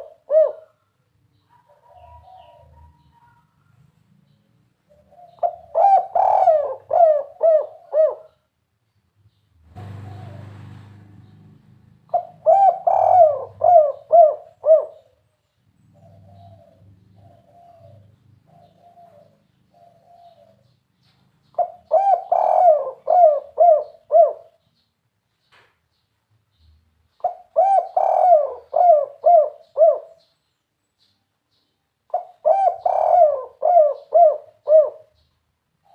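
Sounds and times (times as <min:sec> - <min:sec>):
dove cooing: 0:00.0 - 0:03.4, 0:04.8 - 0:08.5, 0:09.8 - 0:11.1, 0:12.0 - 0:15.3, 0:15.9 - 0:20.8, 0:21.5 - 0:24.6, 0:27.2 - 0:30.3, 0:32.1 - 0:35.2.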